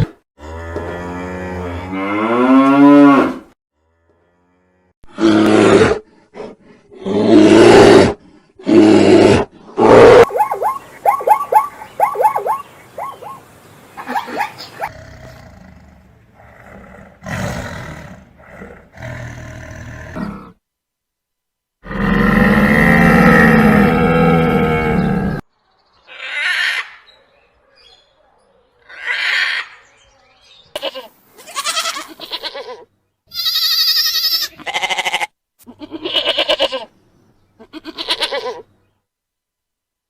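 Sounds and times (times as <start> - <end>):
loud animal calls: 9.8 - 15.4, 28.8 - 29.8.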